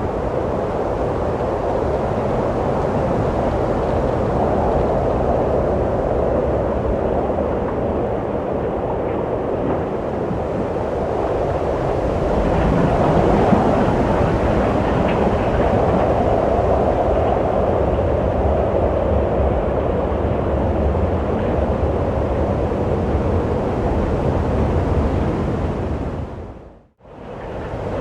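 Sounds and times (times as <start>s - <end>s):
wind blowing: 0.0s - 28.0s.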